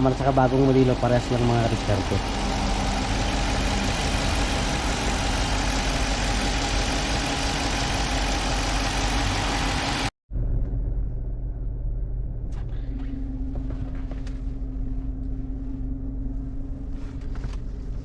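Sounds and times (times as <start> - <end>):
car engine idling: 0.0 - 10.1.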